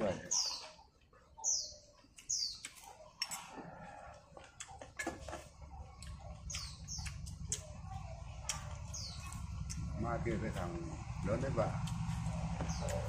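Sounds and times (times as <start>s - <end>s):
bird chirping: 0.0s - 3.5s, 5.5s - 11.2s, 11.8s - 13.0s
low rumble: 5.9s - 13.0s.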